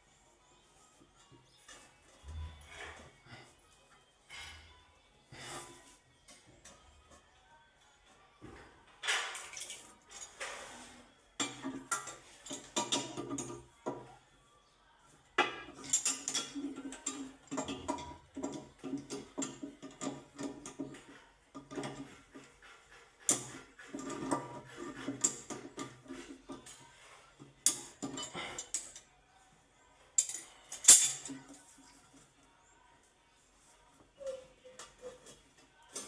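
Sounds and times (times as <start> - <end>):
hard objects clinking and clattering: 30.2 - 31.7.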